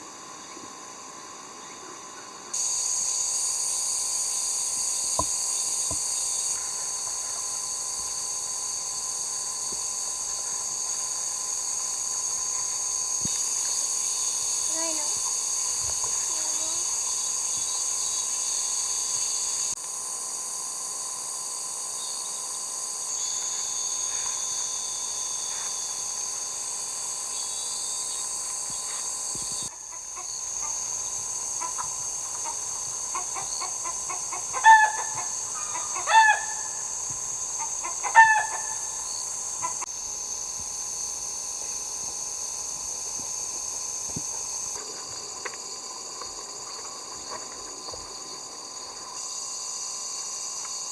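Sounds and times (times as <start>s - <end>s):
insect chorus: 0.0s - 50.9s
short bird calls: 31.6s - 36.9s.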